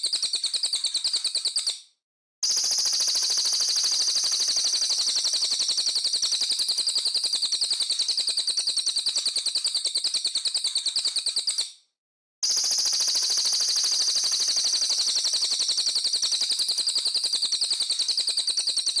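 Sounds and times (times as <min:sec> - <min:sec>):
songbird rapid trill: 0:12.4 - 0:19.0.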